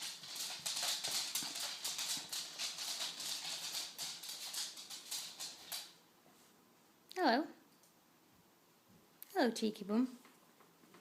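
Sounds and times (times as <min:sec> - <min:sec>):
dog claws clicking on floor: 0:00.0 - 0:06.0.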